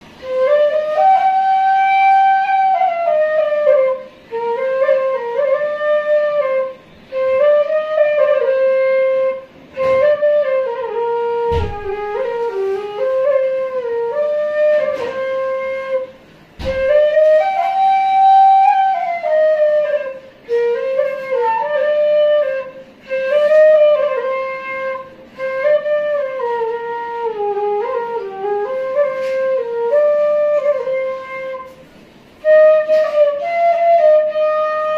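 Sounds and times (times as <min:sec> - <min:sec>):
solo flute melody: 0:00.0 - 0:34.9
sharp knocks: 0:11.5 - 0:12.2, 0:16.6 - 0:17.1.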